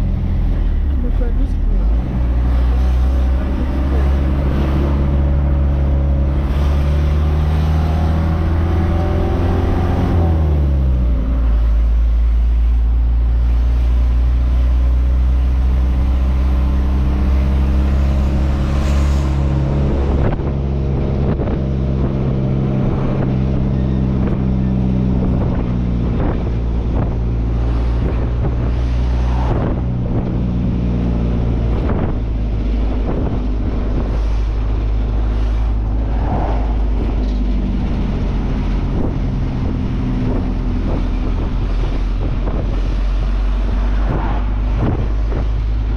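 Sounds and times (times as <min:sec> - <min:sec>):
truck engine running: 0:00.0 - 0:45.9
wind noise on microphone: 0:00.0 - 0:45.9.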